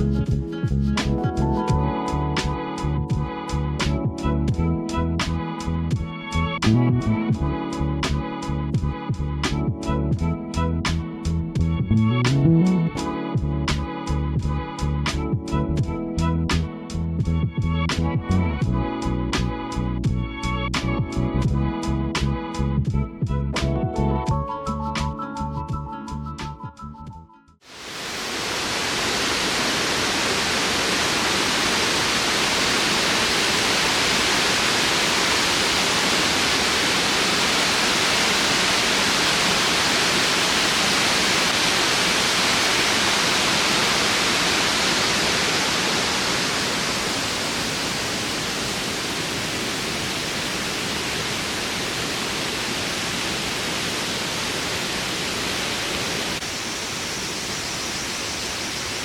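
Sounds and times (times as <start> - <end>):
waterfall rushing: 27.6 - 59.0.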